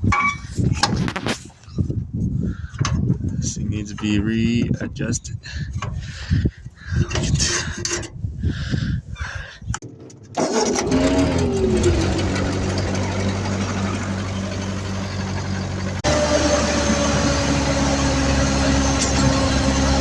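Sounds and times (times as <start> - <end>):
tractor engine cranking and idling: 2.7 - 6.1, 6.9 - 8.3, 9.6 - 20.0.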